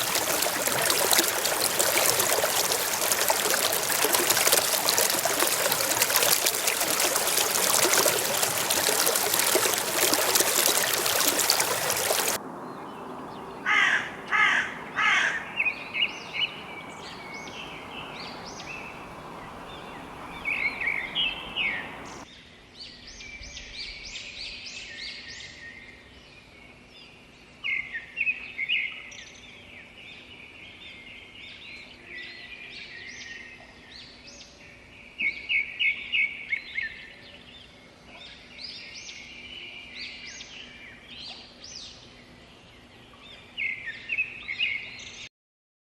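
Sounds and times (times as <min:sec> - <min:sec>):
rushing water: 0:00.0 - 0:22.2
bird calls and chirps: 0:09.8 - 0:22.2.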